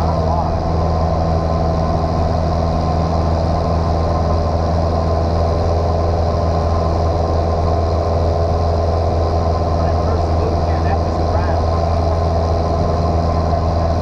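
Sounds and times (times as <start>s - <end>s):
airplane engine droning: 0.0s - 14.0s.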